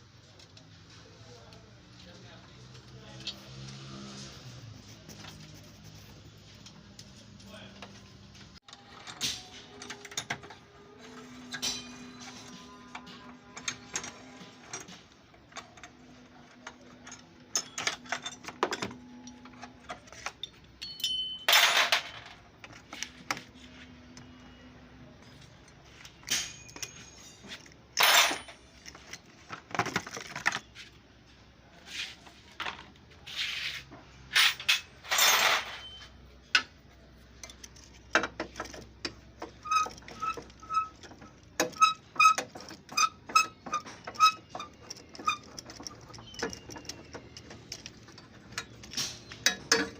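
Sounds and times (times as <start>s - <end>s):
metal tools clinking and knocking: 8.7s - 23.5s, 25.2s - 30.8s, 34.3s - 49.9s.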